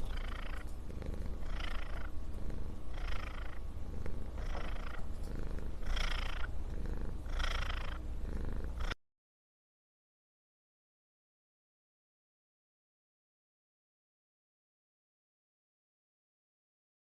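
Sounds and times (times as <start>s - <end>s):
cat purring: 0.0s - 9.0s.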